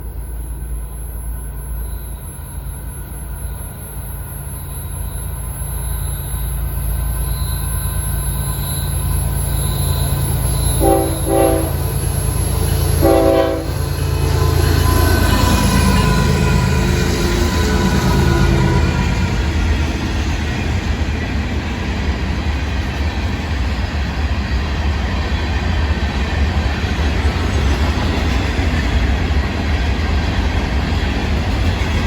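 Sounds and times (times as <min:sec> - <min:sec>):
diesel locomotive rumble: 0:00.0 - 0:32.0
train horn blasts: 0:10.6 - 0:19.6.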